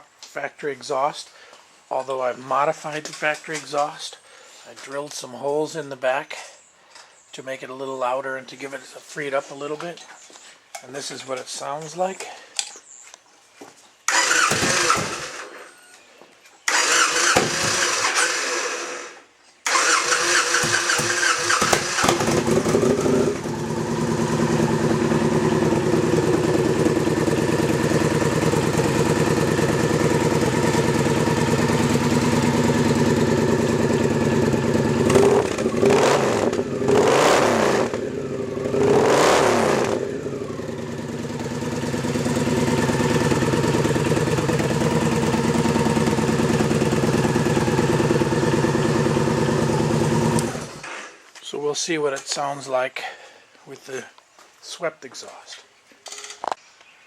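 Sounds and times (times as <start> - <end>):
motorcycle engine starting and idling: 14.1 - 15.7, 16.7 - 51.2
motorcycle throttle blips: 20.9 - 50.8.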